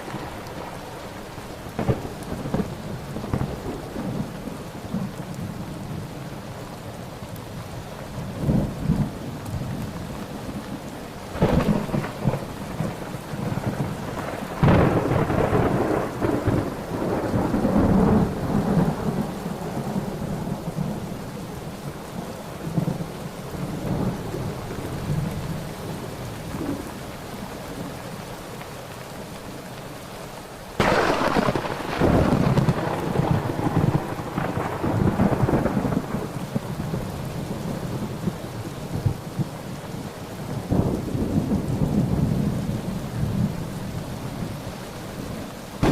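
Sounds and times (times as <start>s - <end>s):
thunder rumbling: 0.0s - 6.1s, 8.2s - 21.8s, 30.8s - 43.8s
steady rain: 0.0s - 45.9s.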